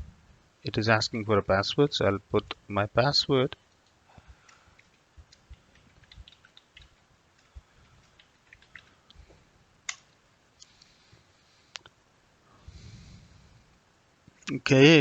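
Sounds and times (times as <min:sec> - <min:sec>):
computer keyboard keystrokes: 0:03.6 - 0:09.0, 0:09.8 - 0:10.1.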